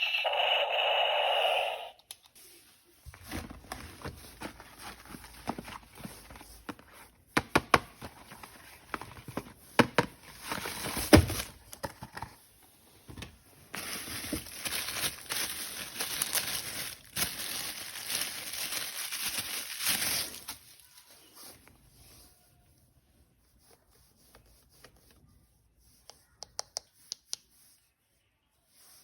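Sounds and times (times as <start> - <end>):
plastic packaging crinkling: 13.7 - 21.2.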